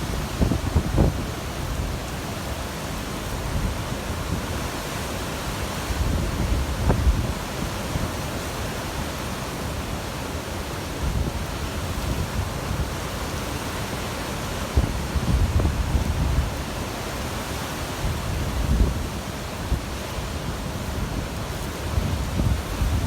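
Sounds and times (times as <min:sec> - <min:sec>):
rumbling wind gusts: 0:00.0 - 0:01.9
wind buffeting microphone: 0:00.0 - 0:02.0, 0:20.5 - 0:23.0.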